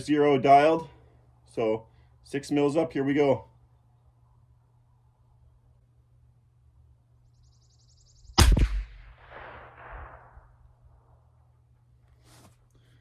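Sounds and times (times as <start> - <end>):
gunshot echo: 8.4 - 10.7
rifle shot crack: 8.4 - 10.8.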